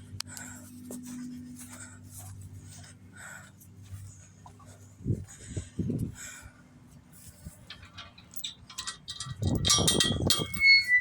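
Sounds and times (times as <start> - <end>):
metal clinking and rattling: 7.3 - 11.0
ringing metal clink: 7.7 - 11.0.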